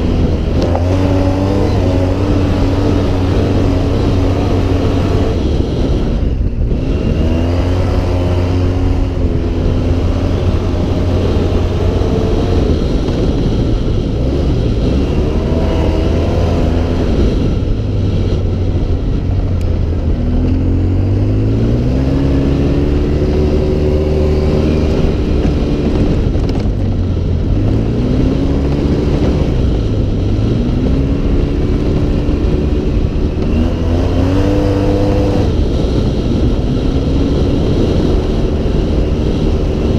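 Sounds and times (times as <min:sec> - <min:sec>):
steady rushing noise: 0:00.0 - 0:39.9
vehicle engine revving: 0:00.0 - 0:39.9.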